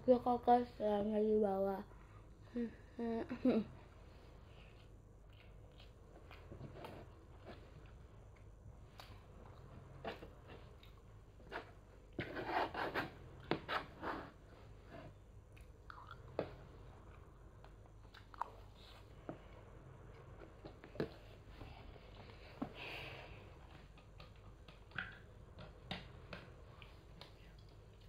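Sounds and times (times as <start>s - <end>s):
child chewing: 4.2s - 12.2s, 15.1s - 19.5s.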